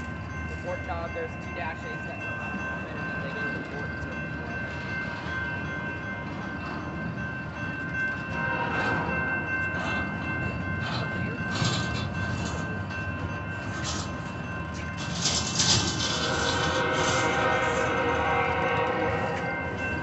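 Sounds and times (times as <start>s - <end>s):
metallic wheel clanks: 9.6s - 20.0s.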